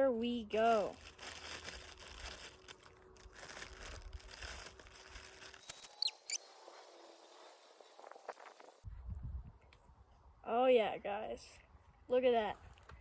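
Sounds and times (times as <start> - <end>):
plastic packaging crinkling: 0.5 - 6.4
high falling chirps: 5.7 - 6.5.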